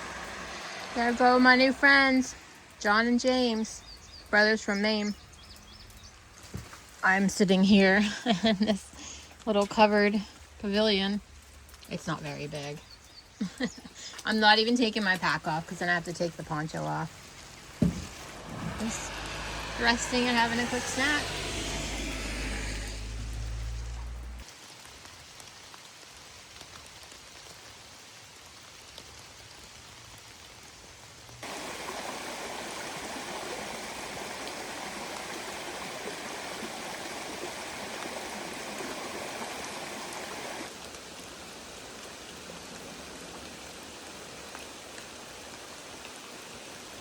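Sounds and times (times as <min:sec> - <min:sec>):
rain and running water: 0:00.0 - 0:47.0.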